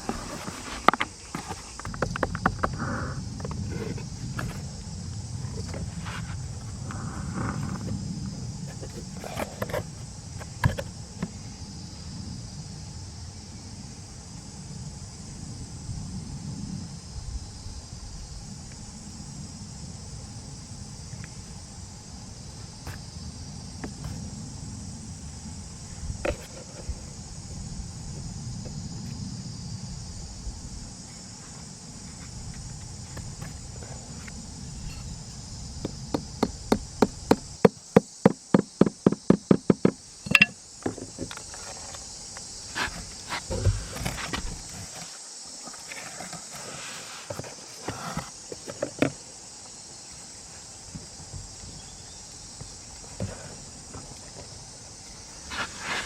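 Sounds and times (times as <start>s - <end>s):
insects chirping chorus: 0.0s - 56.0s
wind rumble on microphone: 1.7s - 37.4s
sharp knocks: 36.1s - 41.2s.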